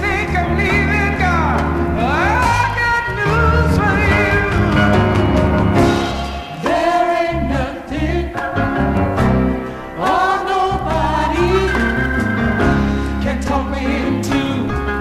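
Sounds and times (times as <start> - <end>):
gospel choir singing in harmony: 6.6 - 13.2.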